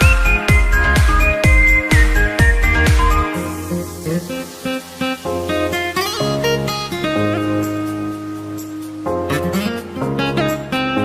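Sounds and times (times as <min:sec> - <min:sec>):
deep kick drum: 0:00.0 - 0:03.3
high synth melody: 0:00.0 - 0:06.8.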